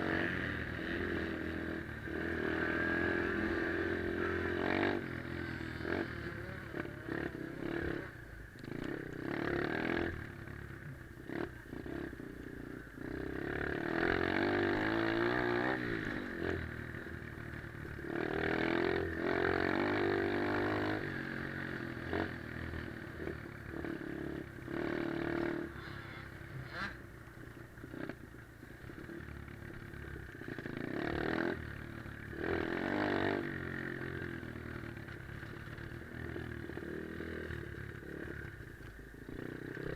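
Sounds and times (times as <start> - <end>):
motorbike engine revving: 0.0 - 10.3, 13.0 - 17.4, 18.0 - 27.1.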